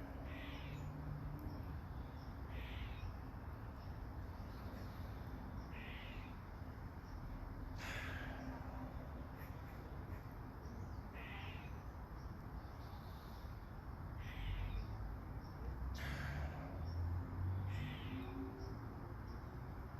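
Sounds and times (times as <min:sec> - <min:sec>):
bird calling harshly: 0:05.7 - 0:06.4, 0:11.1 - 0:11.8, 0:14.2 - 0:14.9.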